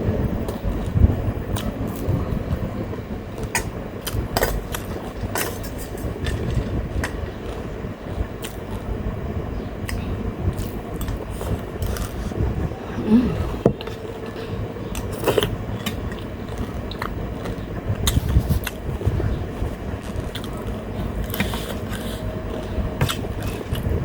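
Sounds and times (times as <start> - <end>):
steady fan hum: 0.0 - 24.0
person chewing: 8.4 - 8.9, 13.0 - 18.8, 19.6 - 23.9.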